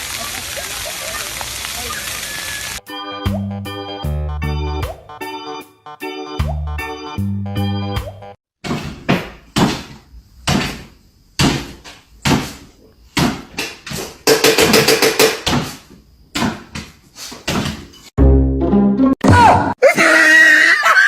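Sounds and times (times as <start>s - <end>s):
knocks and thumps: 8.6s - 18.0s.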